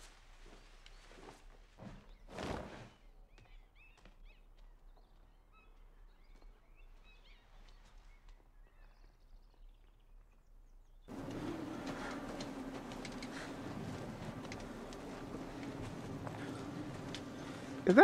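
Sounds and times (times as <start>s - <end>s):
faint birdsong: 0.4s - 18.0s
steady low hum: 11.1s - 18.0s.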